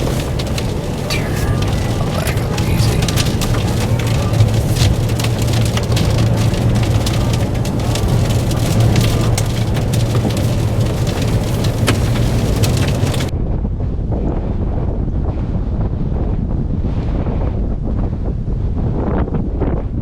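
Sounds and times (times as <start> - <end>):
rain pelting a car: 0.0 - 13.3
strong storm wind: 0.0 - 20.0.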